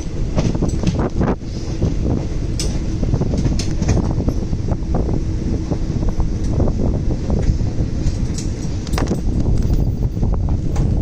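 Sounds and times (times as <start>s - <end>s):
train wheels rumbling on rails: 0.0s - 11.0s
wind noise on microphone: 0.0s - 11.0s.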